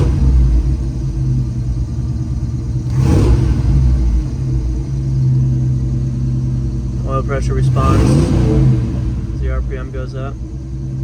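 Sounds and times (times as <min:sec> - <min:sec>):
car engine idling: 0:00.0 - 0:11.0
loud engine burst: 0:07.3 - 0:10.4.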